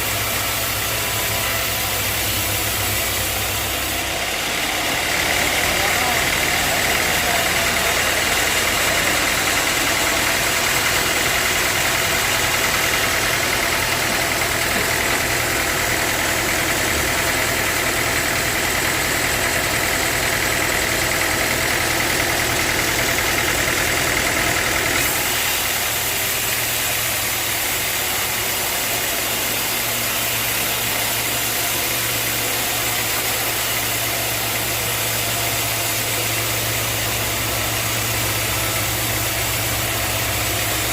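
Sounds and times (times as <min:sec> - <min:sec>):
sawmill machinery low hum: 0:00.0 - 0:40.9
sawmill machinery whine: 0:00.0 - 0:40.9.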